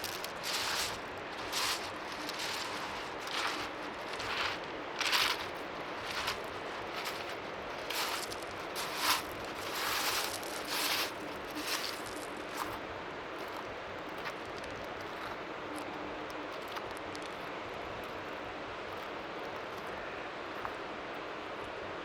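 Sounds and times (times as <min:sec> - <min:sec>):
faint waves lapping: 0:00.0 - 0:14.4.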